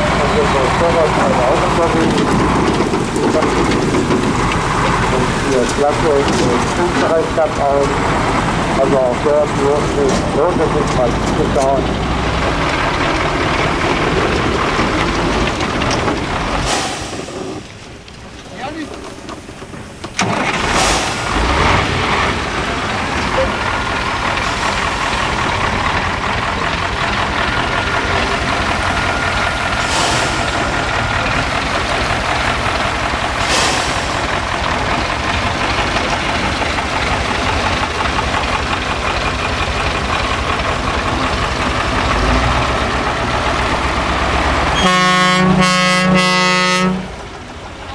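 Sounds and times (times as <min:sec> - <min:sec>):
truck engine running hard: 0:00.0 - 0:47.9
truck horn: 0:43.3 - 0:47.4.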